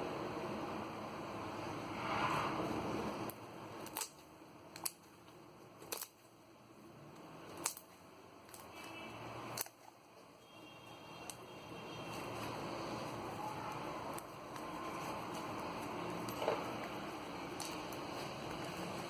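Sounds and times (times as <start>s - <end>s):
slime rustling: 12.0s - 19.0s.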